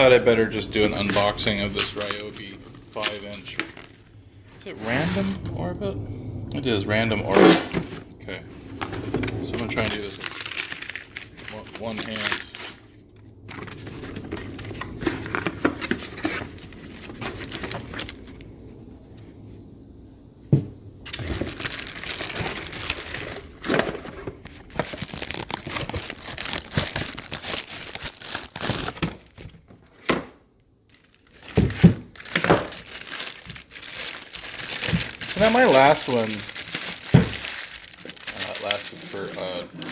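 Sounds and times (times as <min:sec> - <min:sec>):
packaging crinkling and tearing: 0:00.0 - 0:04.1, 0:08.7 - 0:18.5, 0:21.1 - 0:29.7, 0:30.8 - 0:39.9.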